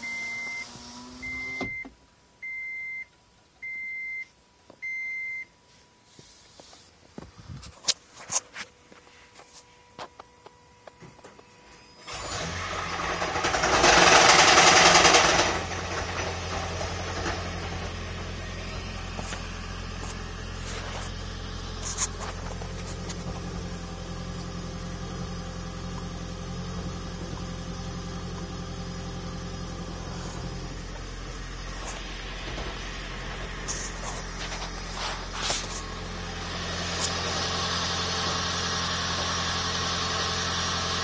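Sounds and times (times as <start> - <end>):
car engine starting and running: 0.0 - 2.0, 11.8 - 41.0
engine rattling: 12.1 - 41.0.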